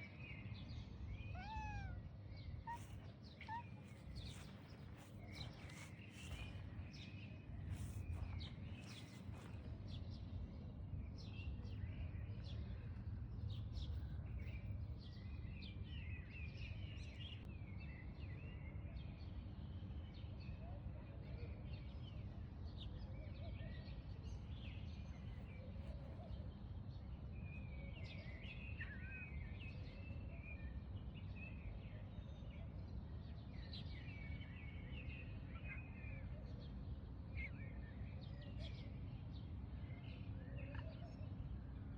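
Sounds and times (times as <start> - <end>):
small birds chirping: 0.0 - 10.3.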